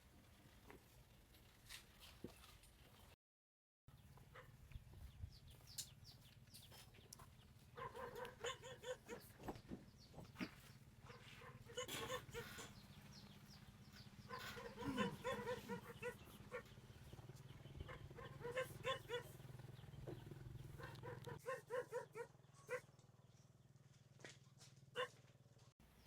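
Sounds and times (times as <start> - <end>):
farm animals calling: 5.5 - 22.9.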